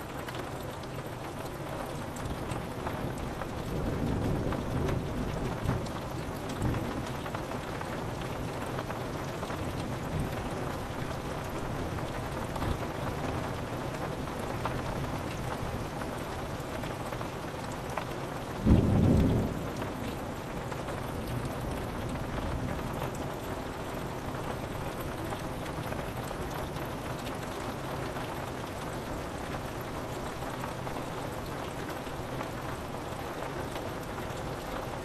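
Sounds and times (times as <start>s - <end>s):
rain pattering on a window: 0.0s - 35.0s
thunder rumble: 18.6s - 22.9s.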